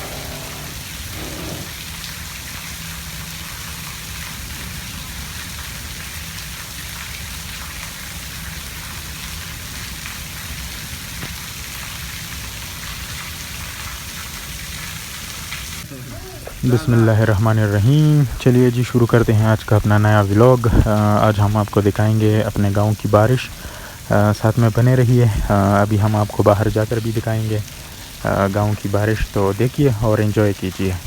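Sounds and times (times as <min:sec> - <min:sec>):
rain falling steadily: 0:00.0 - 0:31.0.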